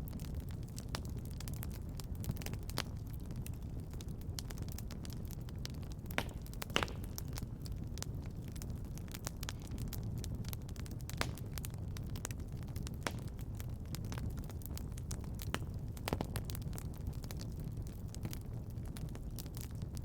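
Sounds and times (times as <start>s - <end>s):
fire crackling: 0.0s - 20.0s
low rumble of flames: 0.0s - 20.0s
sharp pops of fire: 0.2s - 19.8s.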